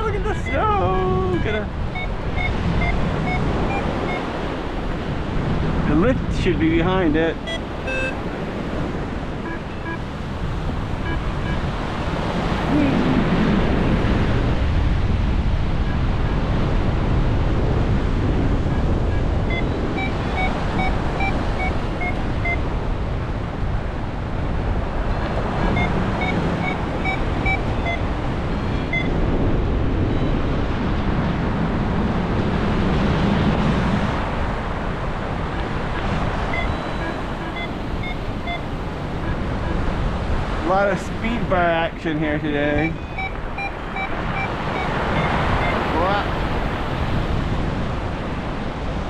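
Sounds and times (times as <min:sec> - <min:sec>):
short electronic beeps: 0:00.0 - 0:04.4, 0:07.4 - 0:08.4, 0:09.4 - 0:10.1, 0:11.0 - 0:11.7, 0:18.7 - 0:22.7, 0:25.2 - 0:29.2, 0:35.6 - 0:39.9, 0:42.8 - 0:46.3
strong wind buffeting microphone: 0:00.0 - 0:49.0.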